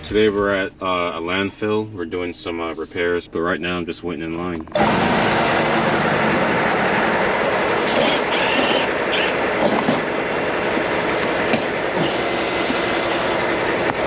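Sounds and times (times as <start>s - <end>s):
large vehicle rumbling and clattering: 0.0s - 0.9s, 4.7s - 14.0s.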